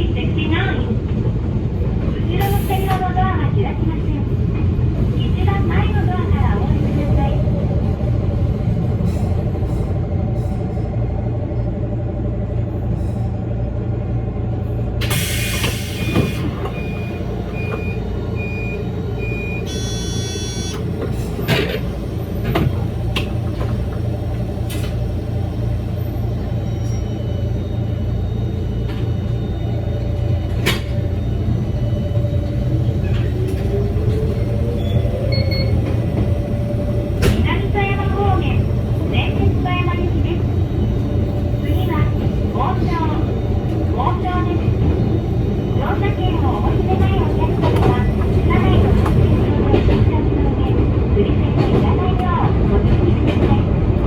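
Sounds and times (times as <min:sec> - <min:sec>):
electric train rumble: 0:00.0 - 0:54.0
short beeps: 0:16.8 - 0:20.8.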